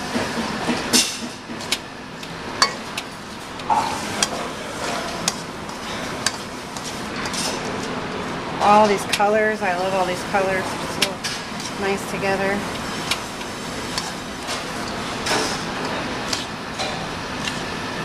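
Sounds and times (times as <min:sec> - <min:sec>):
utensils clicking against bowl: 0:12.7 - 0:15.6.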